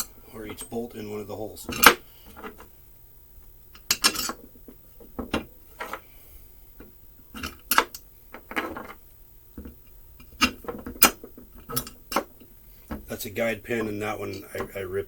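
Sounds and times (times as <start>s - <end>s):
metal bolts clinking: 3.8s - 4.5s.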